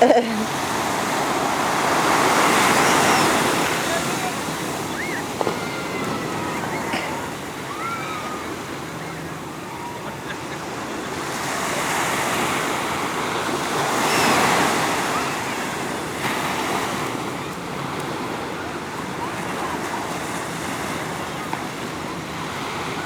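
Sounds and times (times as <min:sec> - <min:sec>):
ocean surf washing onto beach: 0:00.0 - 0:23.0
faint high gliding calls: 0:01.6 - 0:11.6.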